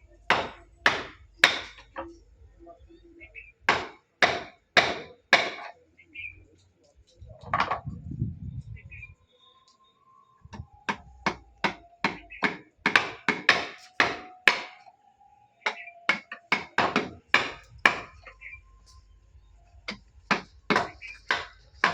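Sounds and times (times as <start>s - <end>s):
hammer striking wood: 0.3s - 2.0s, 3.7s - 5.7s, 10.5s - 14.9s, 15.6s - 18.3s, 19.9s - 21.9s.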